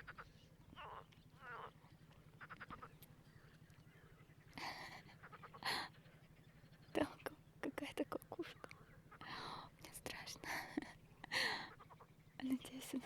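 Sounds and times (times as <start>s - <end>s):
low pulsing frog chorus: 0.8s - 13.0s
frogs croaking: 4.0s - 6.0s, 6.9s - 13.0s.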